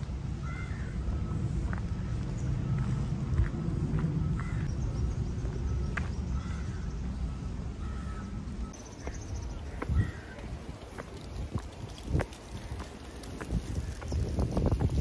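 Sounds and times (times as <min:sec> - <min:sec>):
low outdoor rumble: 0:00.0 - 0:15.0
crow-like bird caws: 0:00.4 - 0:01.4, 0:04.3 - 0:04.7, 0:06.4 - 0:06.9, 0:07.8 - 0:08.4, 0:09.7 - 0:10.5.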